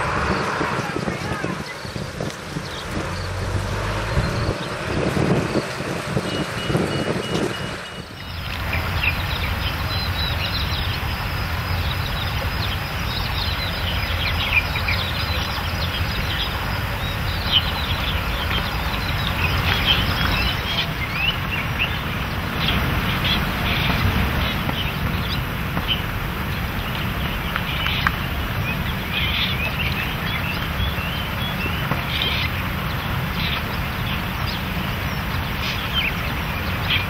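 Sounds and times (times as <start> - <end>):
low rumble: 0.0 - 37.0
small birds chirping: 0.0 - 37.0
high beeps: 6.2 - 8.4.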